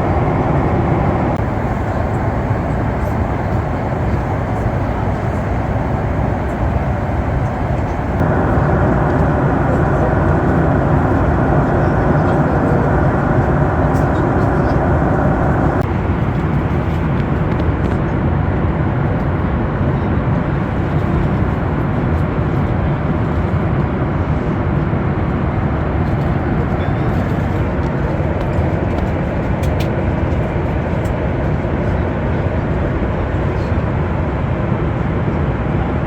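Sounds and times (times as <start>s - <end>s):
airplane cabin noise: 0.0s - 17.7s.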